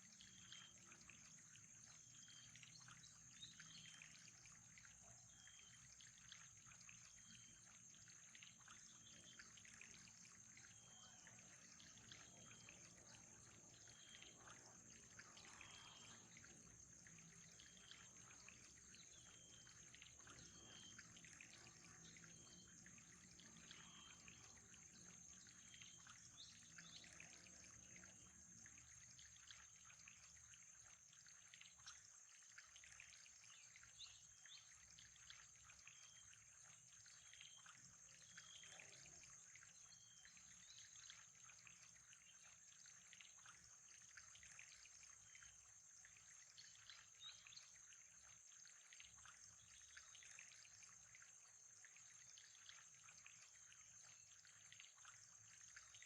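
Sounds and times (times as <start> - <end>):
trickling water: 0.0 - 56.0.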